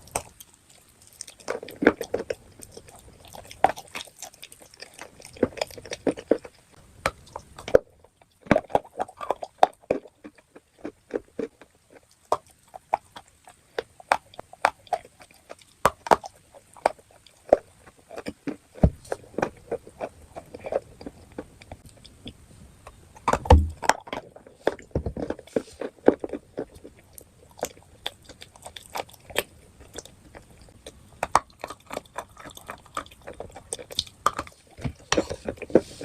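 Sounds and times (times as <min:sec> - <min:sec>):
crunching and chewing chalk: 0:00.0 - 0:36.0.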